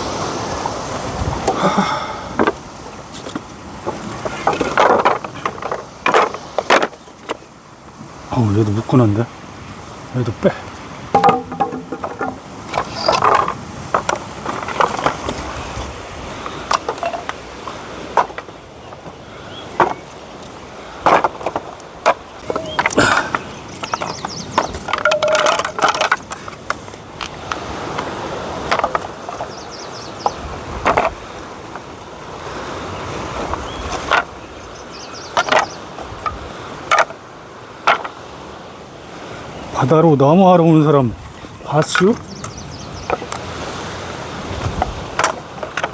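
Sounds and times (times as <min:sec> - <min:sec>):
debris scraping: 0:02.4 - 0:07.4, 0:11.1 - 0:18.6, 0:21.0 - 0:29.6
debris knocking and clattering: 0:04.2 - 0:07.0, 0:11.1 - 0:15.4, 0:21.0 - 0:26.5.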